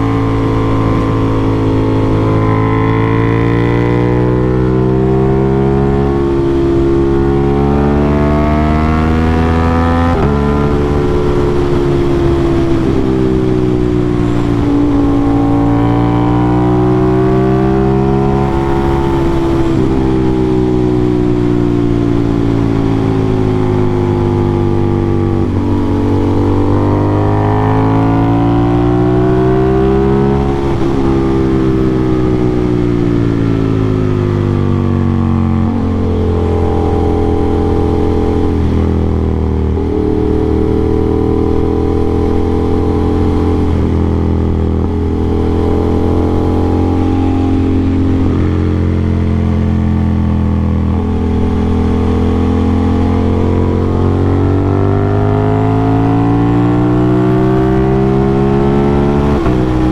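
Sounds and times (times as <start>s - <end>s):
motorcycle engine revving: 0.0s - 59.9s
gear changes: 50.2s - 59.9s.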